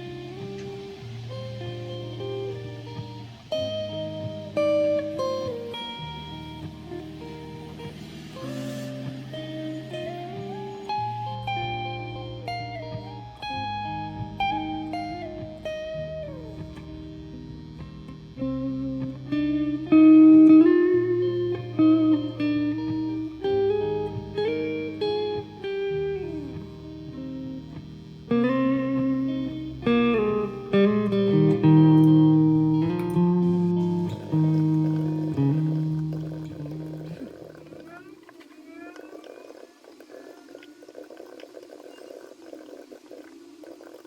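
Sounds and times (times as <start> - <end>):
low sustained accompaniment: 0.0 - 37.9
plucked guitar melody: 0.0 - 39.0.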